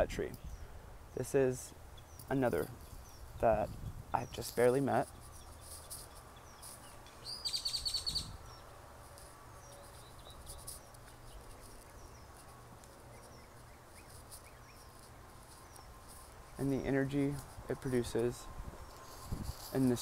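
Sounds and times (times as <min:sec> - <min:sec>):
faint bird chirps: 0:04.2 - 0:16.6
bird trilled call: 0:05.3 - 0:08.6.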